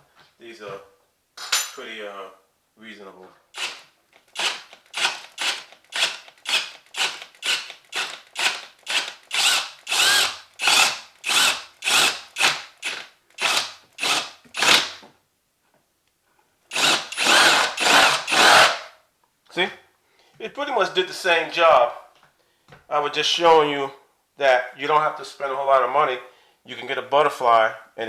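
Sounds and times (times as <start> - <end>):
power drill boring into wood: 3.6 - 15.0, 16.7 - 18.9.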